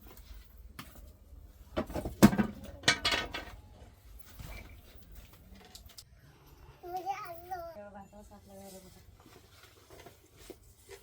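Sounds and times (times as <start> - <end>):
sharp knocks and clattering: 1.7 - 3.7.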